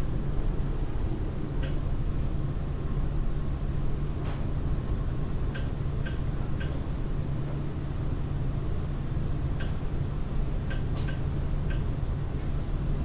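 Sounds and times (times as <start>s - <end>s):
train rumbling inside car: 0.0s - 13.0s.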